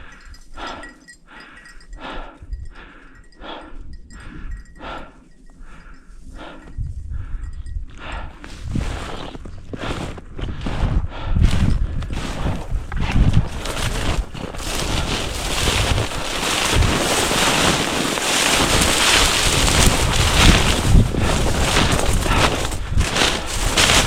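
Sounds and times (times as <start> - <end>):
wind buffeting microphone: 6.3 - 24.0.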